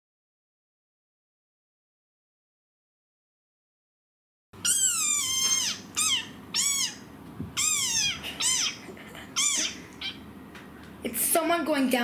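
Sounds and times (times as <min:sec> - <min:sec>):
fox whining calls: 0:04.6 - 0:10.3.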